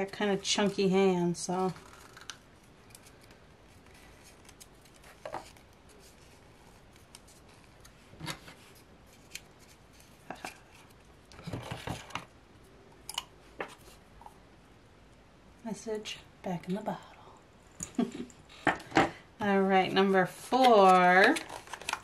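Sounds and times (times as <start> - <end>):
small clicks and crinkles: 0.0 - 12.3, 20.5 - 22.0
paper rustling: 1.5 - 12.1, 20.5 - 22.0.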